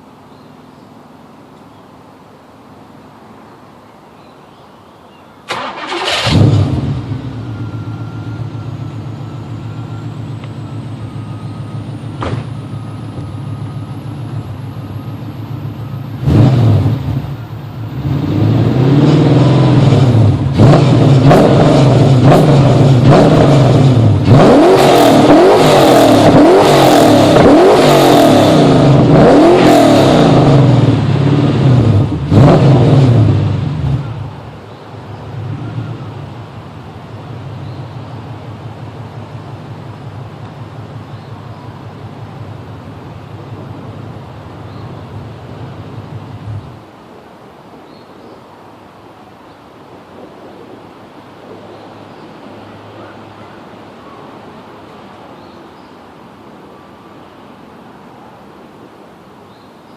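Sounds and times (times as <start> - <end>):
car engine revving: 5.5 - 14.4, 15.3 - 34.2
car engine idling: 5.5 - 18.1
car engine starting: 5.5 - 46.9.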